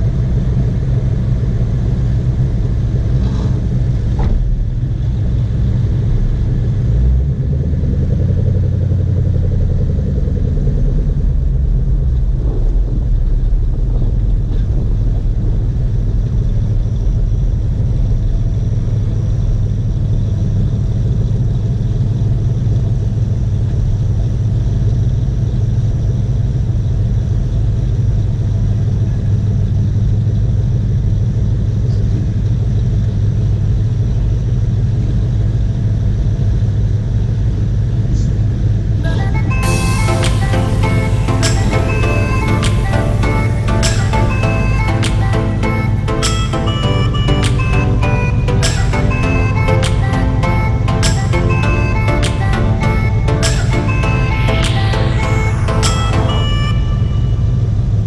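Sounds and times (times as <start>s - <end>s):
cars idling with exhaust rumble: 0.0s - 44.6s.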